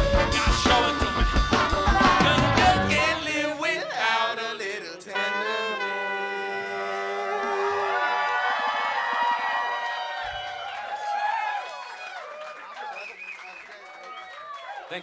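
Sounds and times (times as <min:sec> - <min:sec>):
funk band playing: 0:00.0 - 0:03.4
horns and voice holding chord: 0:00.0 - 0:03.7, 0:05.1 - 0:08.0.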